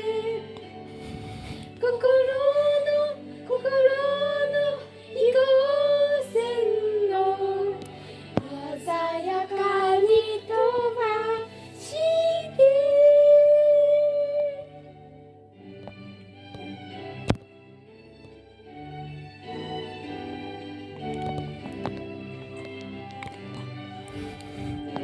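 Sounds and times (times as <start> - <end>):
backing music: 0.0 - 25.0
children singing: 4.0 - 13.3.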